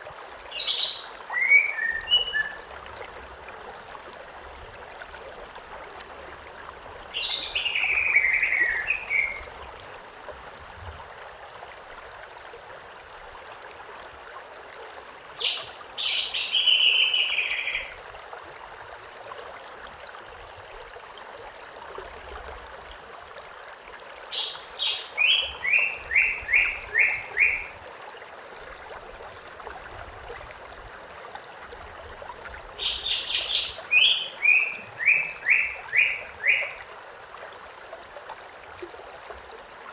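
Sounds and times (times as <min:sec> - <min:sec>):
stream rushing: 0:00.0 - 0:10.6, 0:13.0 - 0:20.6, 0:22.9 - 0:39.9
songbird singing: 0:00.5 - 0:02.7, 0:07.1 - 0:09.5, 0:15.4 - 0:18.0, 0:24.3 - 0:27.8, 0:32.8 - 0:36.8.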